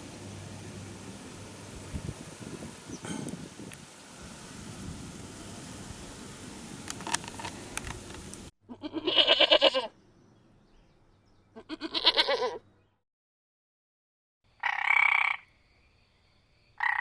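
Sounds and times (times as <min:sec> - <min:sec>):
farm animal bleating: 0:08.7 - 0:10.0, 0:11.5 - 0:12.6.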